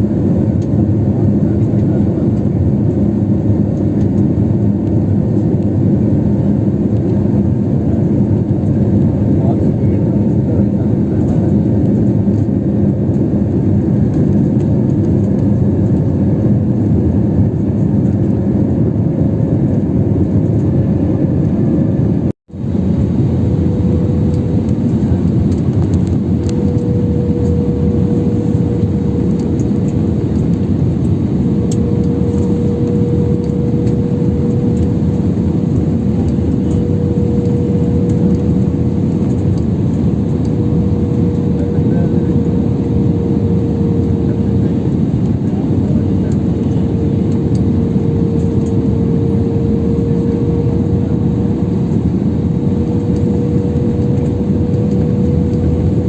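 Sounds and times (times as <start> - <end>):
jet engines: 0.0 - 56.0.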